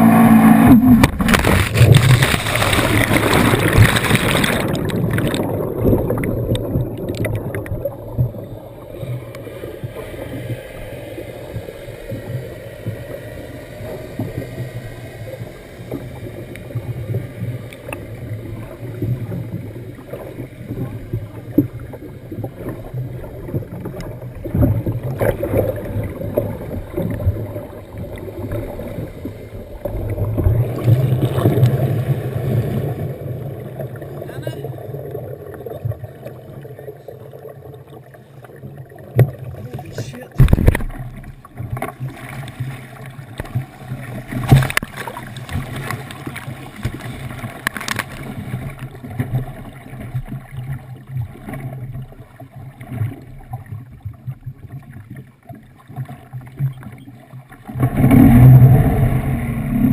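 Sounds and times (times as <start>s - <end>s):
jet ski engine running: 0.0s - 5.3s, 8.0s - 20.5s
water sloshing against hull: 0.0s - 59.9s.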